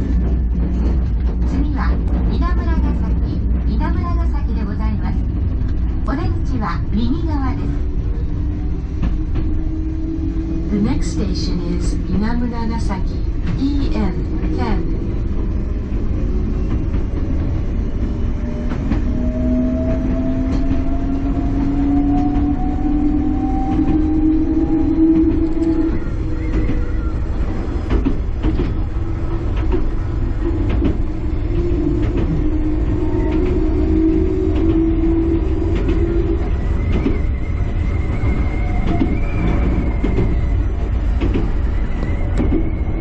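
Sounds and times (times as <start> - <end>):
train rumbling on board: 0.0 - 43.0
wheels clicking over rails: 13.3 - 43.0
train motor whine: 13.4 - 43.0.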